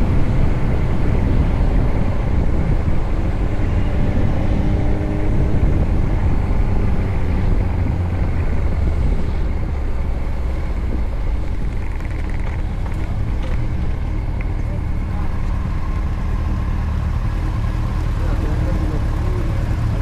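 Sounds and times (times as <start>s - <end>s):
motorcycle engine running: 11.3s - 20.0s.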